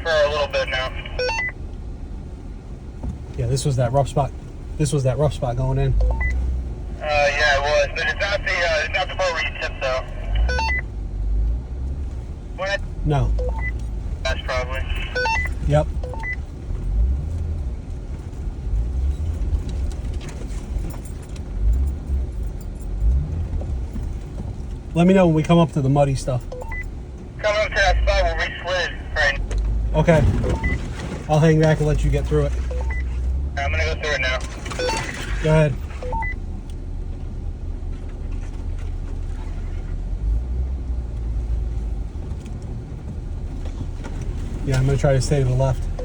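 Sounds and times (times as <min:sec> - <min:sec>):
vehicle rumbling over dirt trail: 0:00.0 - 0:46.0
clunks and rattles: 0:15.4 - 0:24.9, 0:29.4 - 0:33.0, 0:42.1 - 0:44.9.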